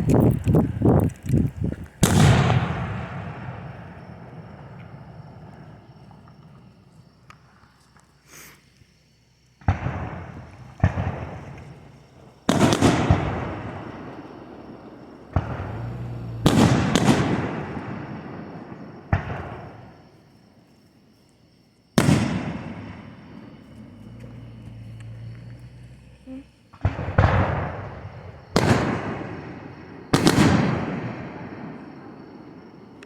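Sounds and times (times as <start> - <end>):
echoing rumble and crackle: 0.0 - 7.6, 9.6 - 19.8, 22.1 - 29.8
firework shell bursts: 9.7 - 18.1.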